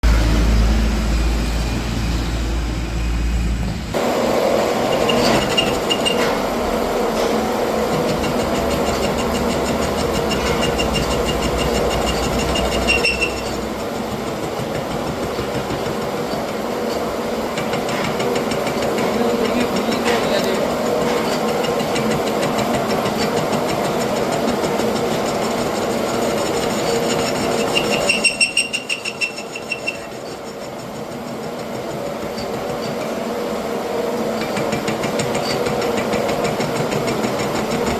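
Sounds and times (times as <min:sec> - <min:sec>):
machine running: 0:00.0 - 0:37.9
fast even mechanical ticking: 0:08.0 - 0:16.6.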